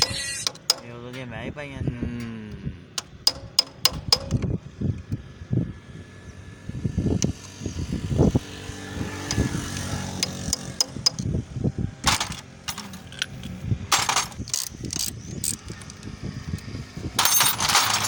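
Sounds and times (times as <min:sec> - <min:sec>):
hand tools clicking on metal: 0:00.0 - 0:01.3, 0:03.0 - 0:04.5, 0:09.2 - 0:11.3, 0:12.1 - 0:18.0.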